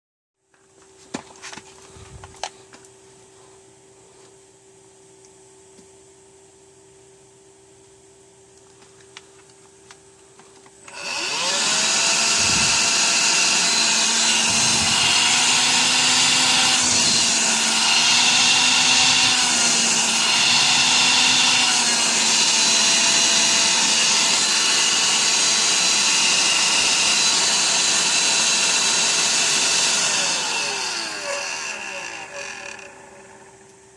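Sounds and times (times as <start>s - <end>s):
cordless vacuum motor whine: 10.8s - 33.8s.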